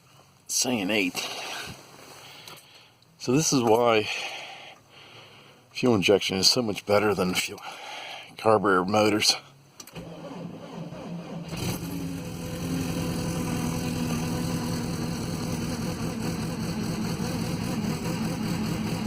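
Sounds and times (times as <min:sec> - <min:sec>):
engine cranking and starting: 0:09.8 - 0:19.0
engine fast idle: 0:10.2 - 0:19.0.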